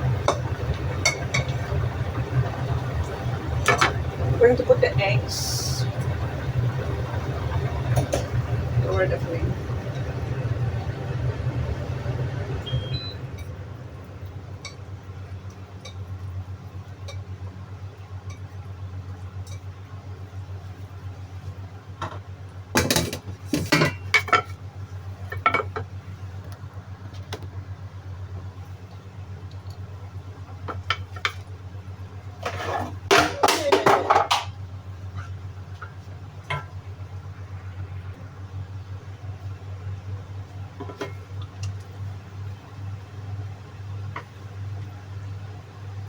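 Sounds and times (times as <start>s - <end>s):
steady low hum: 0.0s - 33.1s, 34.5s - 46.0s
utensil scraping cooking pot: 32.4s - 33.2s.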